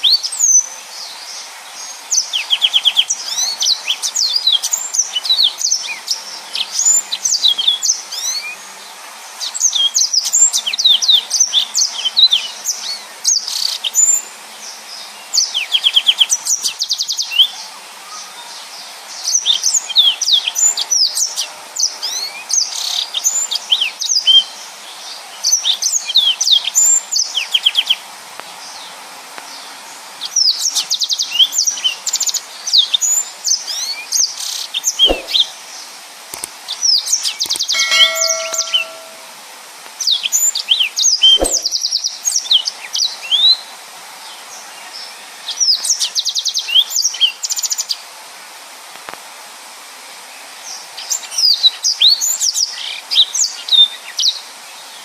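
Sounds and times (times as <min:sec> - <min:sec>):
canary singing: 0:37.5 - 0:39.3.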